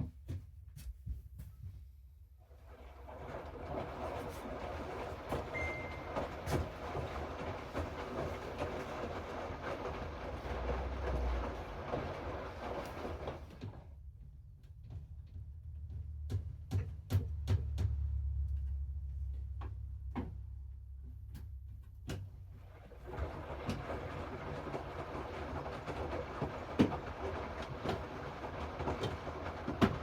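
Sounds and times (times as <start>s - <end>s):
washing machine drum turning: 2.9s - 13.6s, 23.0s - 30.0s.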